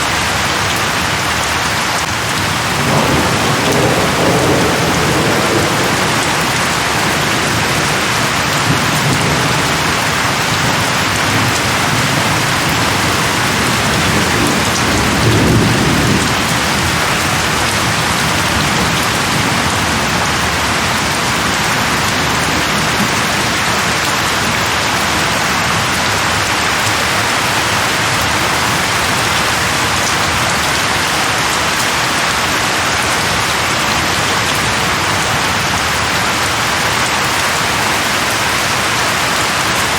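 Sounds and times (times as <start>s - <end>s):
heavy rain falling: 0.0s - 39.9s
thunder rumbling: 2.0s - 30.6s.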